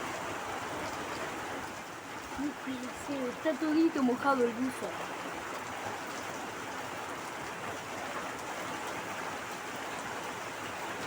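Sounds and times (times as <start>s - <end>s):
rain falling and splashing: 0.0s - 11.0s.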